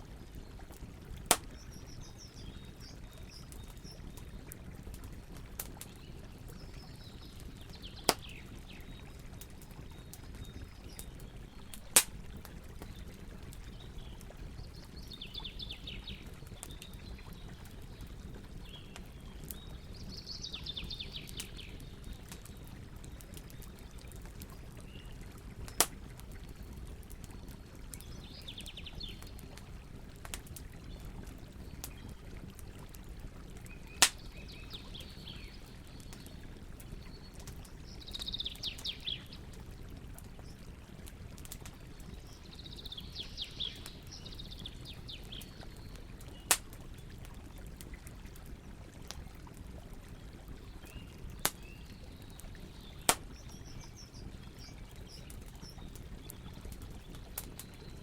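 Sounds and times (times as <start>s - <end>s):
campfire crackling: 0.0s - 58.0s
burning wood popping: 0.8s - 8.5s, 9.2s - 15.0s, 21.2s - 26.2s, 33.8s - 34.4s, 45.2s - 47.9s, 51.3s - 51.8s, 53.0s - 54.0s.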